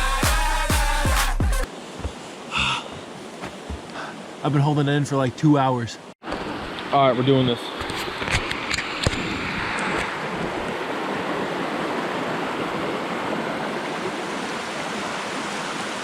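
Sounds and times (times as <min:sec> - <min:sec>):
fast-flowing creek rushing: 0:01.6 - 0:07.2, 0:09.7 - 0:16.0.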